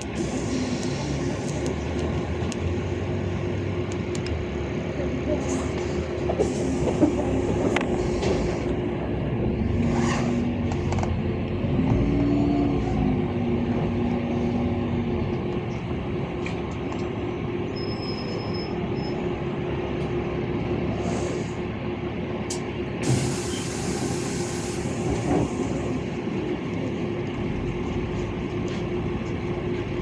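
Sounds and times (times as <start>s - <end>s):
bus engine and road rumble: 0.0s - 30.0s
engine whine: 0.0s - 30.0s
compressed air hiss: 23.0s - 25.0s.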